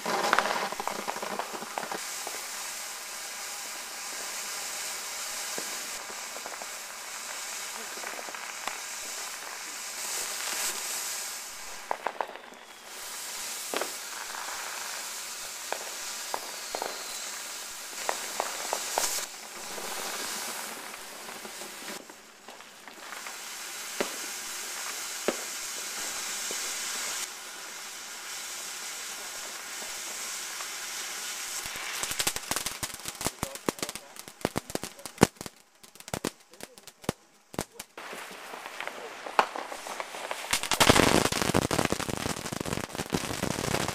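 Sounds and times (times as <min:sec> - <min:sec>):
firecracker bangs: 0:00.0 - 0:27.3, 0:29.1 - 0:43.9
fireworks sizzling and crackling: 0:00.0 - 0:43.9
sharp pops: 0:31.5 - 0:43.9.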